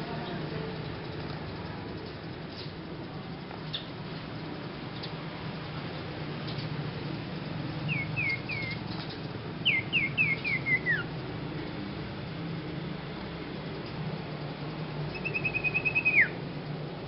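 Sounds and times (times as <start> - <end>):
songbird whistled calls: 7.9 - 8.8, 9.6 - 11.1, 15.1 - 16.4.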